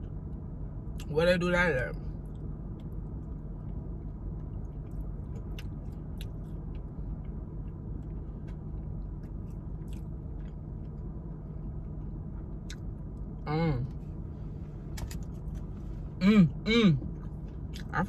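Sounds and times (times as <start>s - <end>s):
low hum in car cabin: 0.0s - 18.0s
chewing crunchy fried food: 2.2s - 13.4s.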